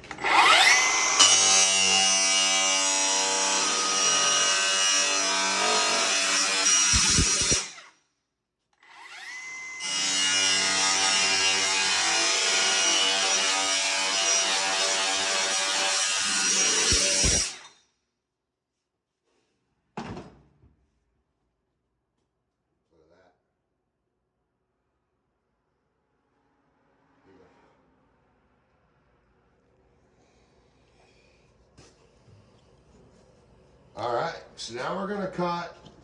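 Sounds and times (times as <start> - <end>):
power tool cutting sheet metal: 0.0 - 8.0, 8.8 - 17.8.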